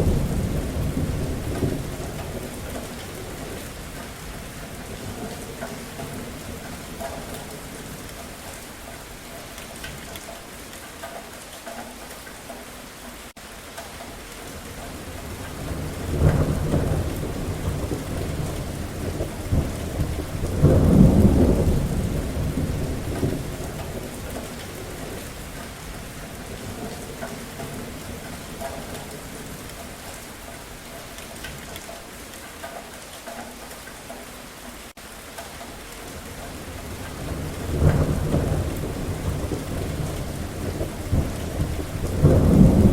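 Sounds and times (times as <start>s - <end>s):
thunder rumbling: 0.0s - 8.5s, 14.9s - 30.2s, 36.0s - 42.9s
steady rain: 0.0s - 42.9s.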